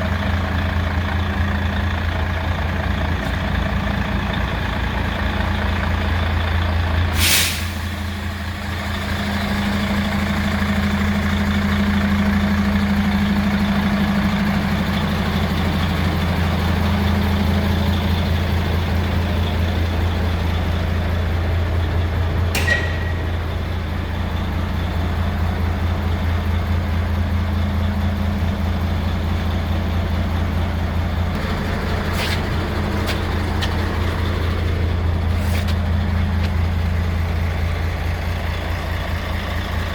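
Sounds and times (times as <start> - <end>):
truck diesel engine idling: 0.0 - 39.9
air brake hisses: 7.1 - 8.3.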